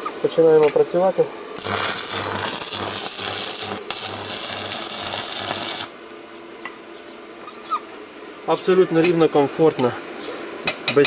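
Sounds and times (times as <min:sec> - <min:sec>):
welding arc crackling hiss: 0:01.6 - 0:06.1.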